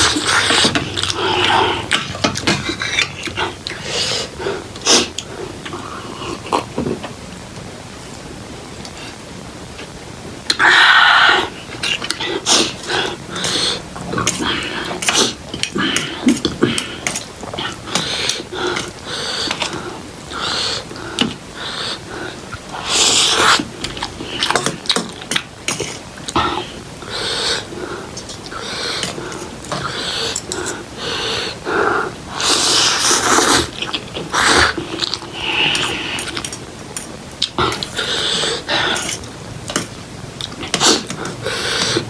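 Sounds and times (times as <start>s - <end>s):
noodles being slurped: 0.0s - 6.8s, 32.3s - 42.0s
person slurping noodles: 25.7s - 36.4s, 40.6s - 42.0s.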